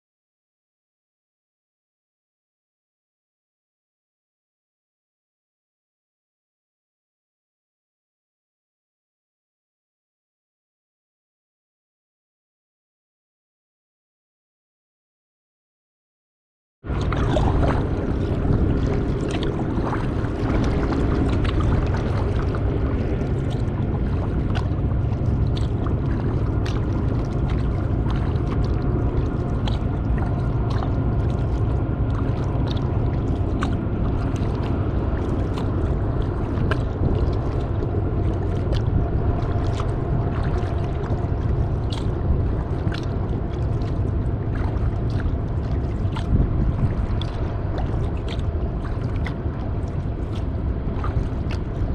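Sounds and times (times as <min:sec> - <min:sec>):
low rumble: 0:16.9 - 0:51.9
paddle splashing water: 0:16.9 - 0:51.9.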